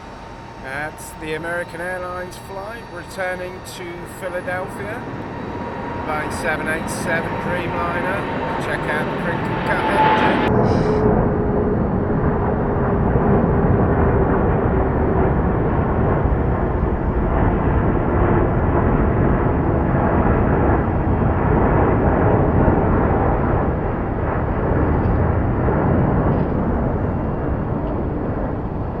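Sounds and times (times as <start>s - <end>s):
faint tone sinking in pitch: 0.0s - 11.2s
jet engine roar: 0.0s - 29.0s.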